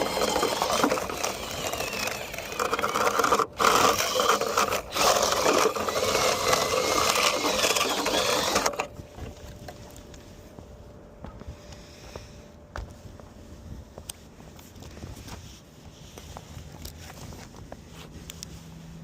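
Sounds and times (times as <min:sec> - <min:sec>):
small power tool motor rattling: 0:00.0 - 0:09.6.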